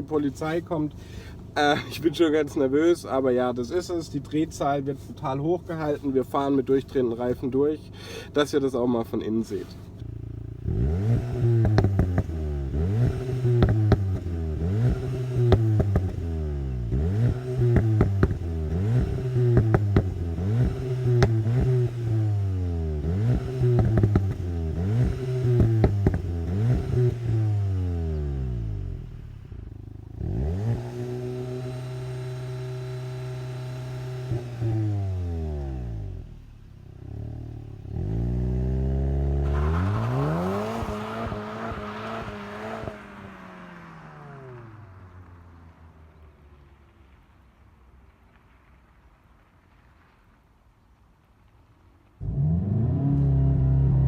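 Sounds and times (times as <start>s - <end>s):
exhaust crackles: 0.0s - 54.0s
car engine revving: 9.5s - 46.3s, 52.2s - 54.0s.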